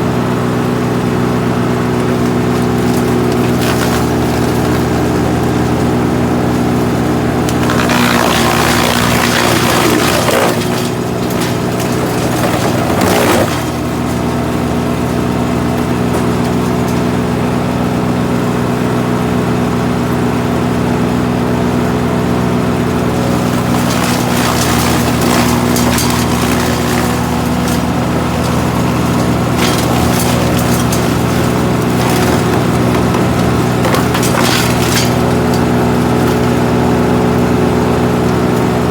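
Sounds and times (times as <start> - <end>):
wood chipper running: 0.0 - 38.9
branches being chipped: 6.4 - 14.4, 23.0 - 36.9.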